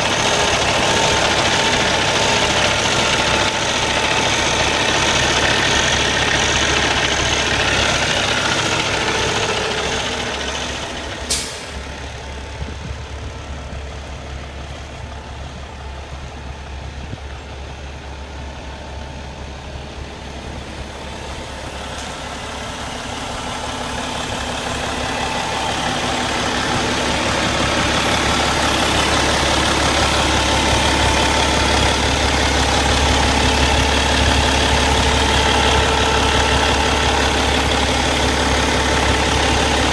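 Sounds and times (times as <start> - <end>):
diesel truck idling: 0.0 - 39.9.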